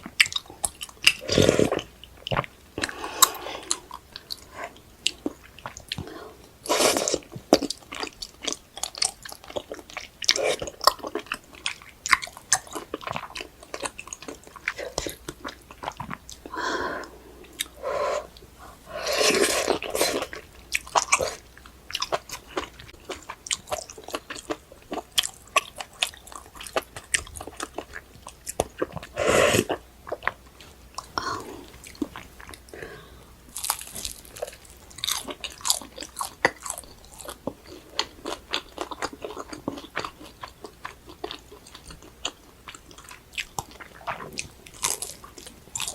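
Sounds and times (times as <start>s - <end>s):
chewing and crunching: 0.0s - 16.5s, 19.1s - 32.8s, 33.5s - 45.9s.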